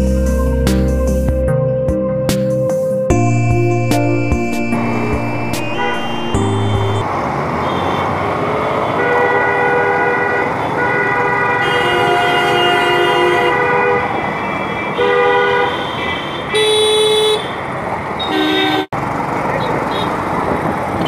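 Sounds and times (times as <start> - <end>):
road and engine noise: 0.0 - 21.0
vehicle horns honking: 4.9 - 17.6, 18.2 - 18.9, 19.6 - 20.2.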